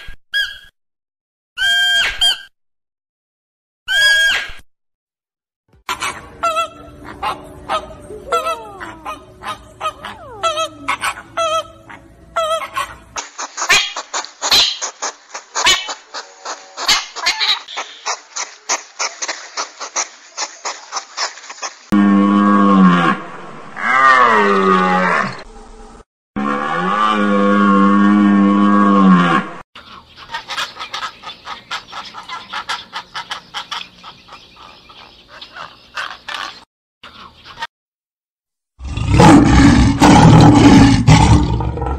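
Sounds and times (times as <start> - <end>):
flamingo honking: 5.9 - 13.1
bird clicking and clucking: 12.8 - 21.9.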